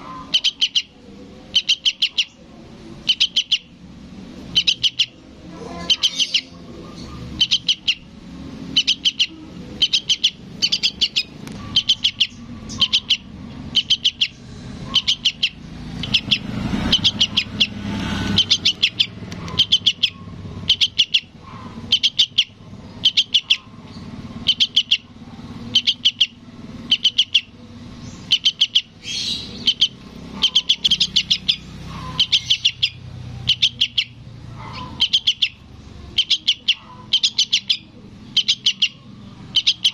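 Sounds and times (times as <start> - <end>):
fledgling bird begging chirps: 0.0 - 39.9.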